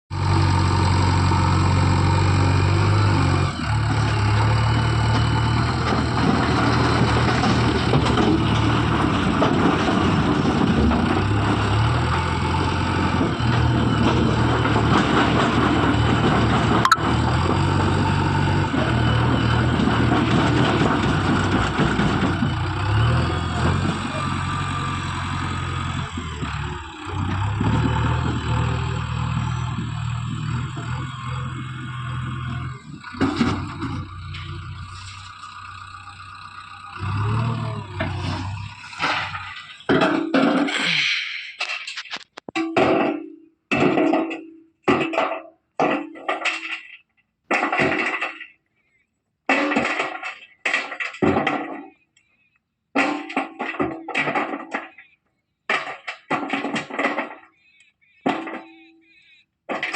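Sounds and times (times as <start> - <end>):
diesel engine droning under load: 0.1 - 45.2.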